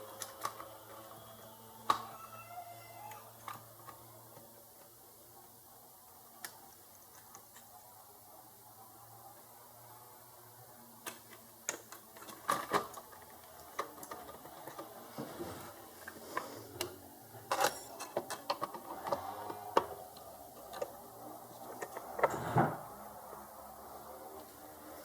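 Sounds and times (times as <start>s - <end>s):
hands handling plastic and metal parts: 16.0s - 22.5s.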